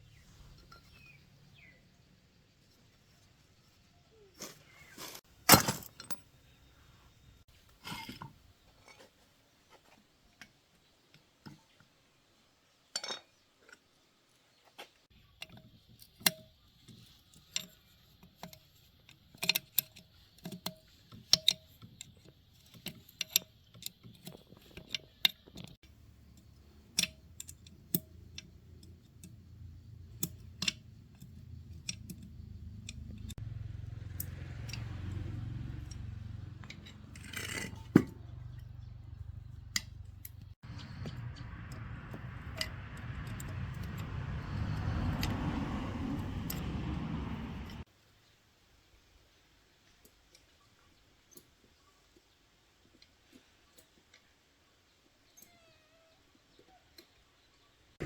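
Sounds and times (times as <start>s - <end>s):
metal tools clinking: 5.0s - 6.3s, 35.9s - 38.5s
low hum: 38.2s - 47.8s.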